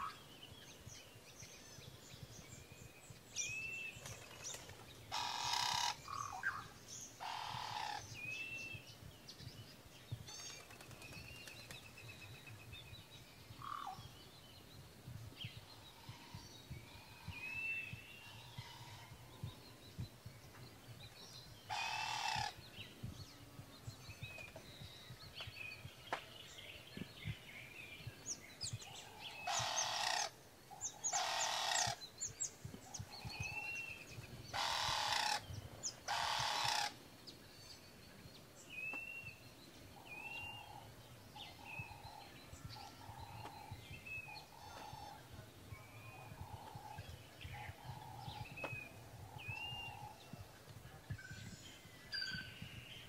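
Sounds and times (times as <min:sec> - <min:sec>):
birds chirping: 0:00.0 - 0:53.0
harsh bird calls: 0:21.6 - 0:22.7, 0:29.0 - 0:32.2, 0:33.0 - 0:37.0.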